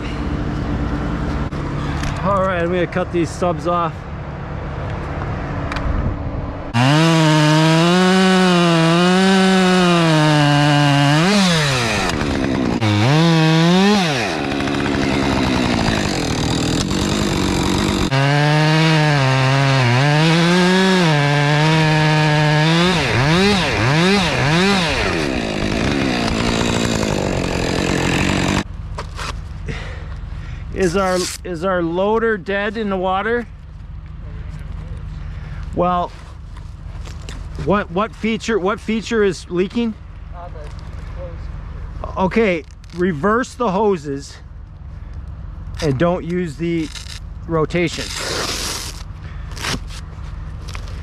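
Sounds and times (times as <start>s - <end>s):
chainsaw cutting log: 6.7s - 29.8s, 45.8s - 51.0s.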